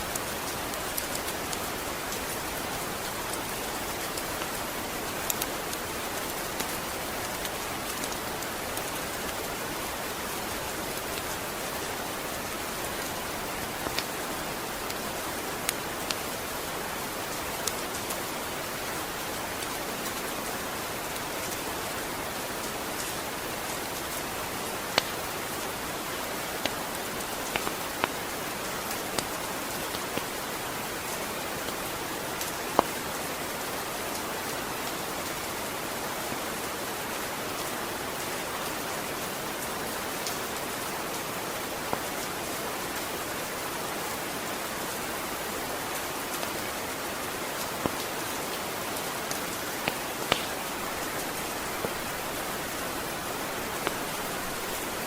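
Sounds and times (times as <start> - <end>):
steady rain falling: 0.0 - 55.0
ticks of single raindrops: 0.1 - 16.7, 22.6 - 34.2, 45.6 - 55.0.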